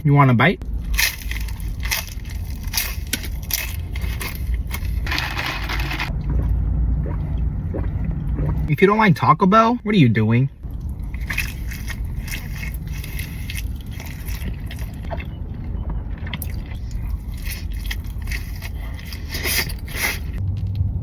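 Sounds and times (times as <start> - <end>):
low rumble: 0.1 - 21.0
person chewing food: 10.6 - 20.4.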